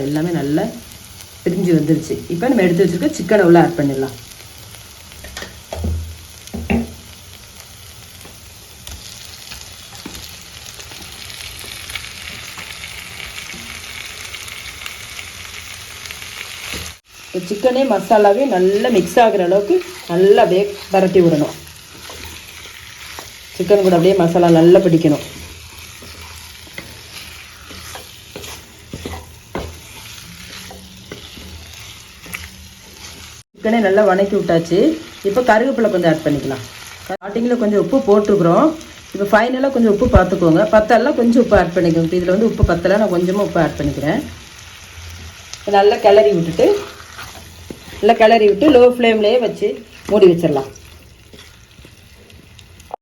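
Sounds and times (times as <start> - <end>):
frying sizzle: 0.0 - 53.0
stirring in a pan: 9.1 - 33.5, 42.2 - 53.0
utensil scraping and knocking pan: 25.3 - 31.6.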